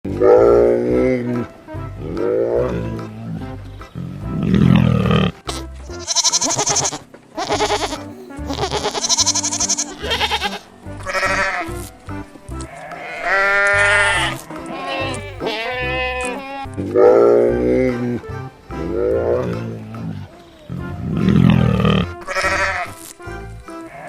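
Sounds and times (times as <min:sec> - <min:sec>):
background music: 0:00.1 - 0:24.0
sheep or goat bleating: 0:03.8 - 0:11.9, 0:12.6 - 0:18.0, 0:20.7 - 0:23.1, 0:23.8 - 0:24.0.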